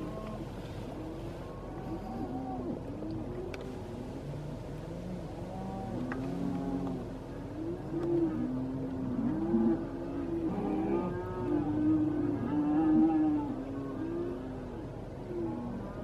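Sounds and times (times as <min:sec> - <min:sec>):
cattle mooing and bawling: 0:03.9 - 0:14.7.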